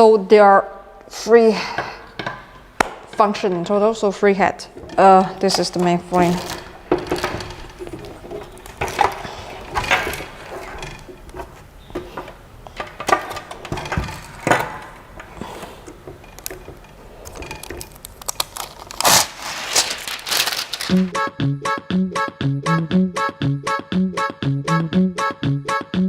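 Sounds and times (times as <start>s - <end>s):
knocks and clicks of machine parts: 1.8s - 3.7s, 4.8s - 18.0s
packaging rustling: 5.2s - 21.1s.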